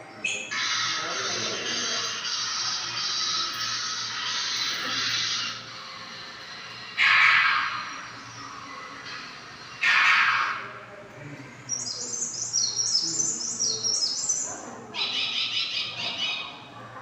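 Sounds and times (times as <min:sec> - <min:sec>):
dense high bird trill: 0:00.1 - 0:05.7, 0:07.0 - 0:09.0, 0:09.6 - 0:10.7, 0:11.7 - 0:16.6
high repeated bird chirps: 0:00.2 - 0:05.6, 0:11.7 - 0:16.6.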